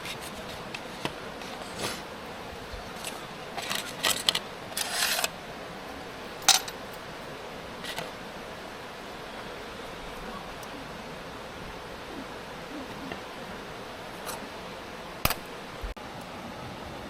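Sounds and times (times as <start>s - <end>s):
faint outdoor hiss: 0.0s - 17.0s
small metal items clinking: 6.4s - 6.8s.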